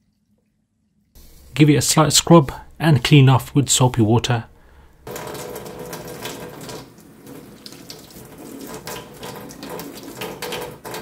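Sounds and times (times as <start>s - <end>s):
tap water splashing into sink: 4.4s - 11.0s.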